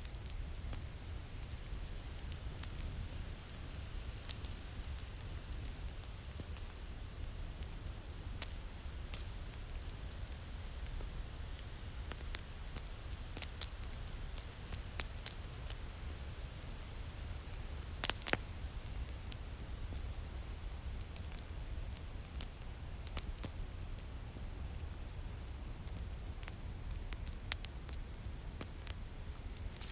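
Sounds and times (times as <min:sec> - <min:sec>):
fire crackling and popping: 0:00.0 - 0:29.9.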